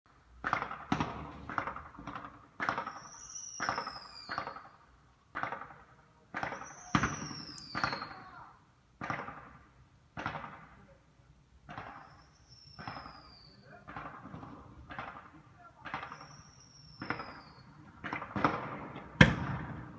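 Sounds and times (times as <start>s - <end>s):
fireworks bangs: 0.3s - 11.0s, 11.6s - 19.9s
falling firework whistle: 2.7s - 4.8s, 6.4s - 8.4s, 11.8s - 13.7s, 16.0s - 17.9s.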